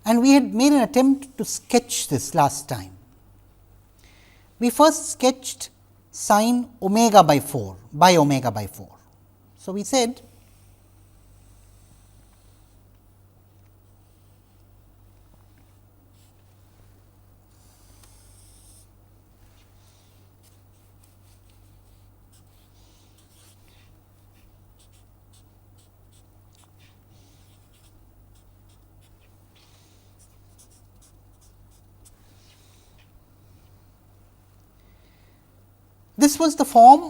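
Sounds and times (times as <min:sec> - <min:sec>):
steady low hum: 0:00.0 - 0:37.0
pen scratching on paper: 0:17.5 - 0:18.9, 0:19.8 - 0:33.1.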